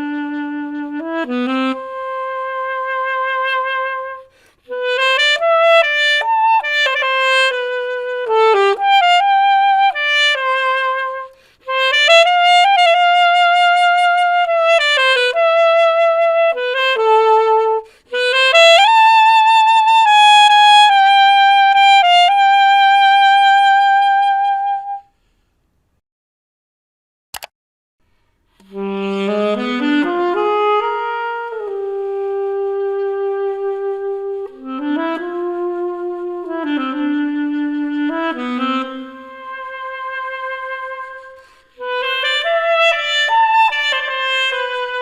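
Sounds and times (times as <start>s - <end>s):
alto saxophone melody: 0.0s - 25.2s, 28.5s - 45.0s
player breathing: 4.3s - 4.7s, 41.4s - 41.8s.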